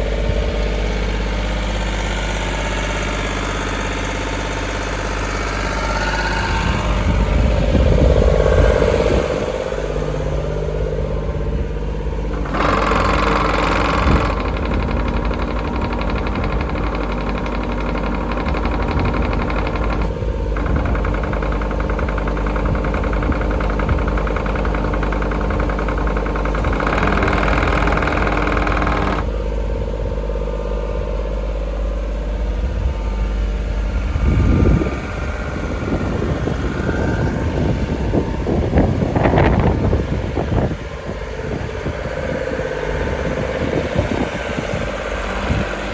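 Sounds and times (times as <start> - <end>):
higher-pitched machine sound: 0.0 - 14.6
excavator diesel engine running: 0.0 - 45.9.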